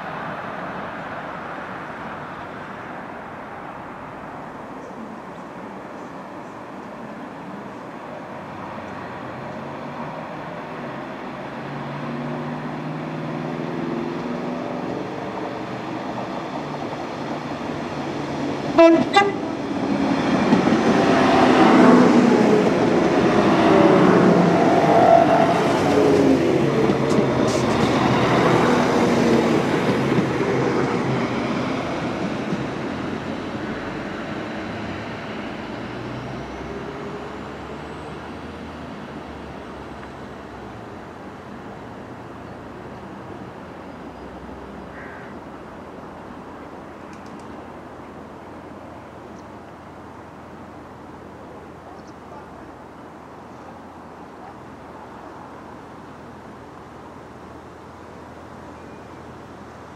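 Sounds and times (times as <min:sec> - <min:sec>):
diesel train passing: 0:00.0 - 0:59.9
train horn toot: 0:18.8 - 0:19.6.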